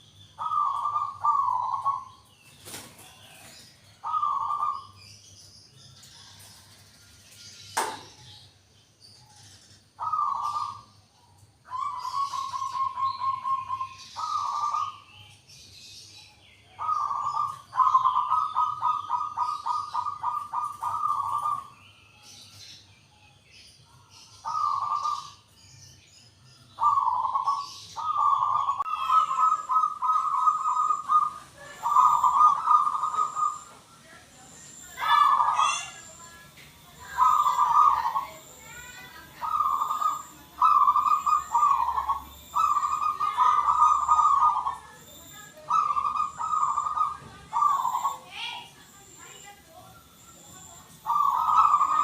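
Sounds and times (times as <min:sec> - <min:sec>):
dove cooing: 0:00.0 - 0:05.0, 0:10.0 - 0:10.9, 0:11.7 - 0:15.1, 0:16.7 - 0:21.7, 0:24.4 - 0:25.4, 0:26.8 - 0:36.2, 0:36.9 - 0:48.8, 0:50.1 - 0:52.0.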